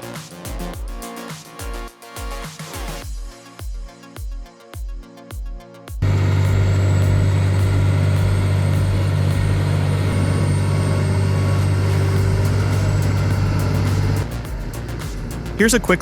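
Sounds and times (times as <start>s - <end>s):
electronic music with steady beat: 0.0s - 16.0s
heavy machine engine drone: 6.0s - 14.3s
faint high whine: 6.0s - 14.7s.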